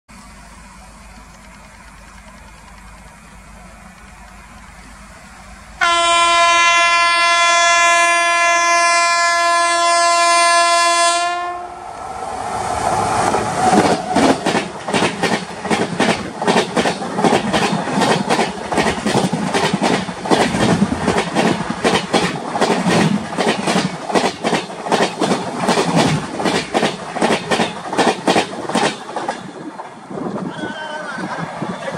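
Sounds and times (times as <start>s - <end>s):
locomotive air horn blast: 5.8s - 11.8s
train wheels clattering over track: 12.8s - 30.1s.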